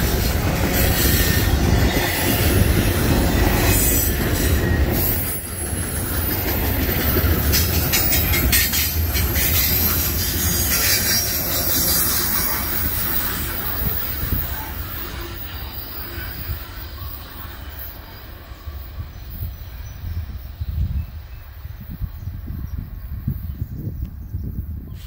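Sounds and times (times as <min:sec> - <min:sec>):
wheels squealing: 0:00.0 - 0:18.6
steel wheels rumbling on rail: 0:00.0 - 0:25.0.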